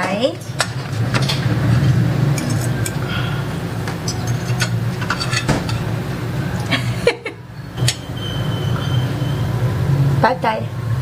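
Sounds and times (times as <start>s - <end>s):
steady low hum: 0.0s - 11.0s
utensils clinking on containers: 4.0s - 5.9s.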